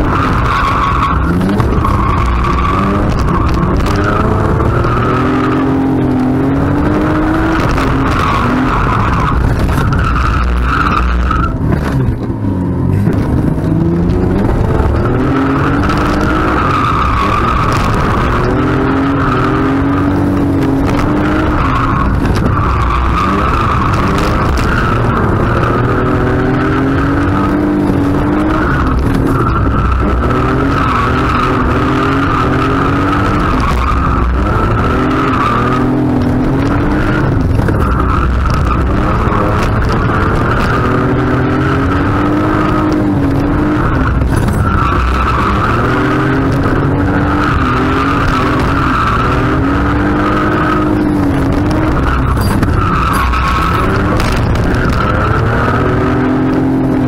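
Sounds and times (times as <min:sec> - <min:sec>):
car engine revving: 0:00.0 - 0:57.0
tyres squealing: 0:43.7 - 0:55.8.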